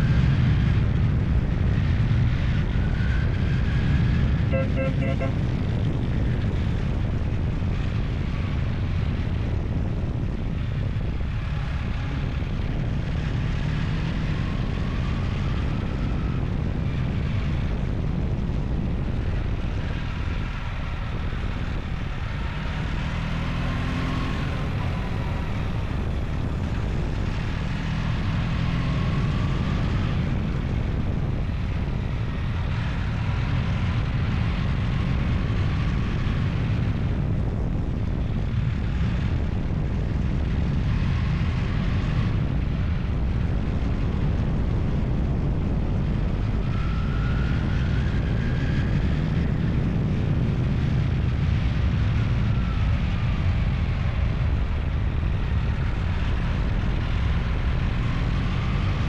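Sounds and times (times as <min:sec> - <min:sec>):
engine running under load: 0:03.5 - 0:07.8, 0:09.4 - 0:36.5
faint rising and falling whine: 0:20.1 - 0:30.0.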